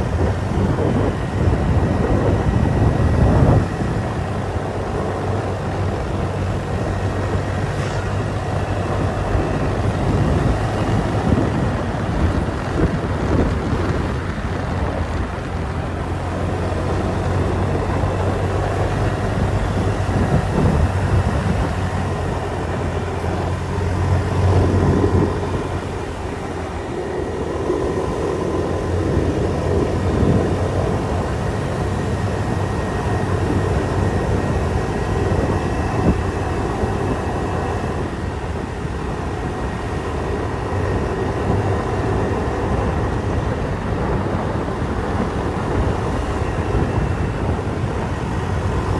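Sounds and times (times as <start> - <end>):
motorbike engine running: 0.0 - 48.9
wind and road noise: 0.0 - 48.9.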